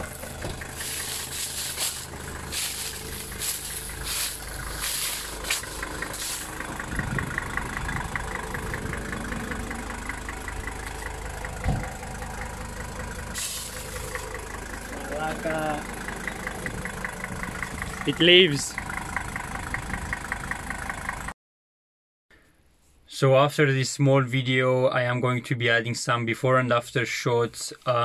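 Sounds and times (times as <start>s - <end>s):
car engine idling: 0.0s - 21.3s
thump: 11.6s - 11.9s
short hissing bursts: 13.4s - 14.2s.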